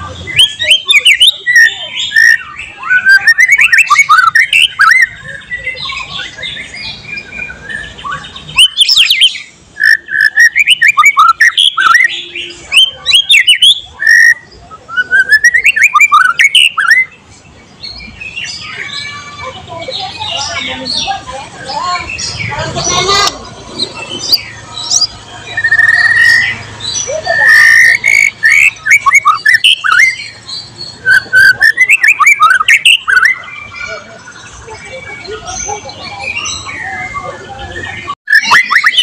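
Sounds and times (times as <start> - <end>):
bird singing whistles and clicks: 0.4 - 6.1, 7.3 - 12.1, 12.7 - 17.1, 24.3 - 26.6, 27.3 - 30.3, 31.0 - 33.4, 38.3 - 39.0.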